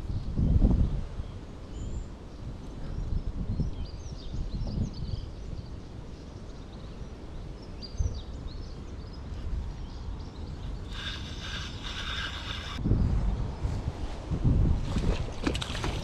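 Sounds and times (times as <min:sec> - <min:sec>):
small birds chirping: 0:01.3 - 0:12.8.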